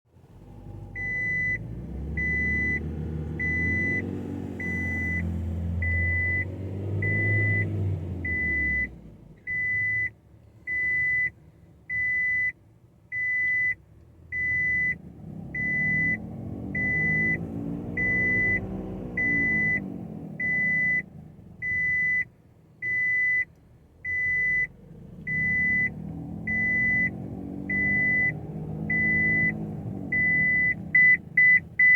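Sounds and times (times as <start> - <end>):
car drivetrain hum: 0.1 - 31.9
electronic warning beep: 1.0 - 1.6, 2.2 - 2.8, 3.4 - 7.7, 13.2 - 13.8, 14.4 - 15.0, 15.6 - 16.2, 16.8 - 17.4, 18.0 - 21.0, 21.6 - 23.5, 24.1 - 24.7, 25.3 - 31.9.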